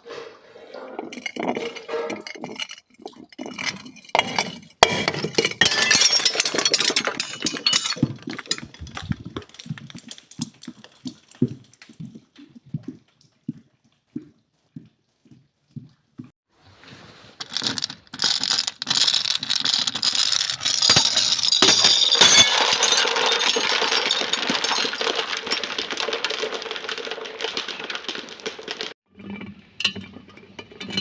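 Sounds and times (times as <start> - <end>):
glass being crushed: 1.1 - 11.9, 17.4 - 29.0.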